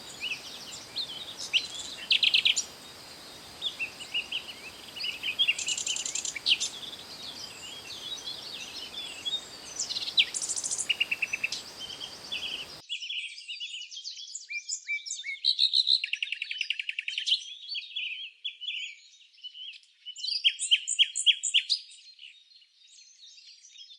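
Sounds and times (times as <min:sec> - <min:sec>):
background hiss: 0:00.0 - 0:12.8
songbirds singing: 0:00.0 - 0:12.8.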